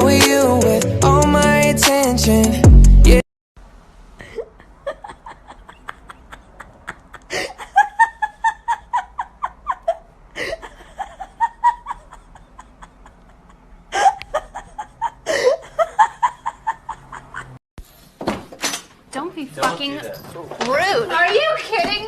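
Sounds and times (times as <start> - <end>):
person laughing: 4.2 - 17.6.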